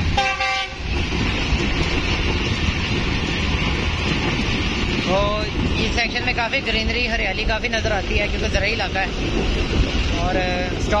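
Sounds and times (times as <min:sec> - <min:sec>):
train wheels rumbling on track: 0:00.0 - 0:11.0
wind noise on microphone: 0:08.2 - 0:11.0.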